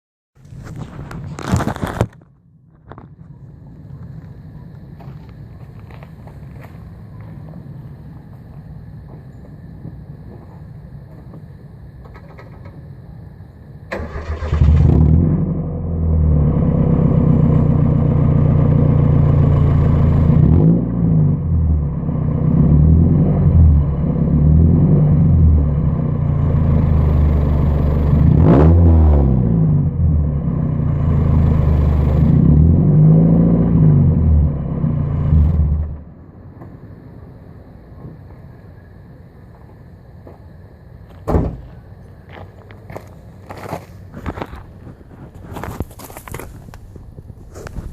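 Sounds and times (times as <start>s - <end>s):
car engine starting and revving: 13.9s - 36.1s.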